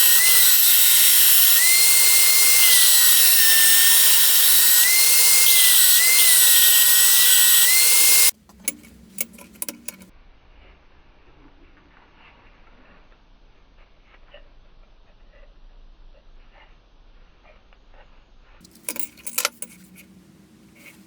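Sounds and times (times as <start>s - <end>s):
electric grinder on metal: 0.0s - 8.4s.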